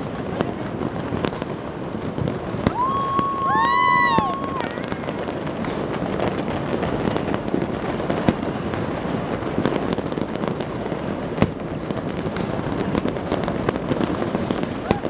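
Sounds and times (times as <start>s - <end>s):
fireworks crackling: 0.0s - 15.0s
loud firework bangs: 0.0s - 15.0s.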